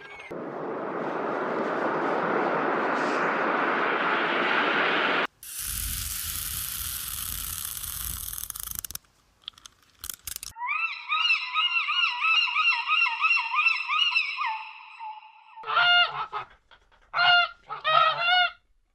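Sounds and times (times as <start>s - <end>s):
hissing rumbling: 0.3s - 9.0s
steady noise: 0.4s - 8.8s
goose honking: 15.6s - 16.5s, 17.2s - 18.6s.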